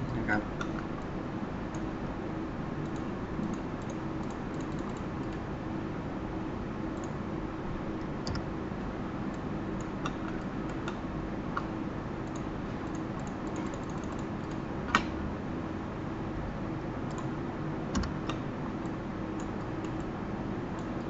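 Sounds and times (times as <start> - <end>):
steady low hum: 0.0 - 21.0
keyboard and mouse clicks: 2.8 - 5.4, 8.2 - 8.4, 11.6 - 15.1, 17.1 - 17.3, 17.9 - 20.1.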